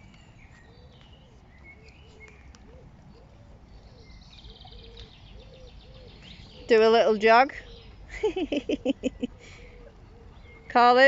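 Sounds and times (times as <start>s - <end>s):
small birds chirping and trilling: 0.0s - 11.0s
low repeated cooing: 0.7s - 6.7s, 8.8s - 10.8s.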